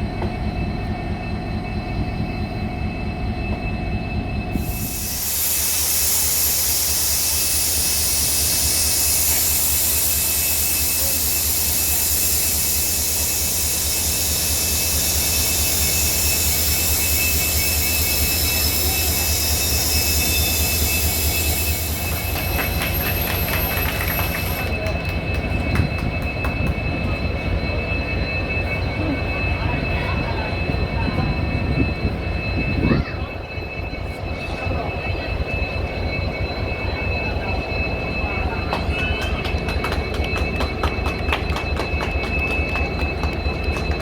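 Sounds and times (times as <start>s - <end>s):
train rumble with clicks: 0.0s - 44.0s
train wheels rushing on rail: 0.0s - 44.0s
thin high wheel squeal: 4.5s - 24.9s.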